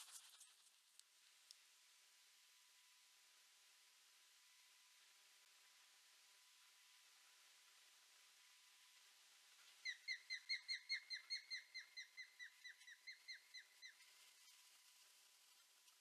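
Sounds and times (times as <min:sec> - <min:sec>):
osprey whistled calls: 0:09.8 - 0:14.0.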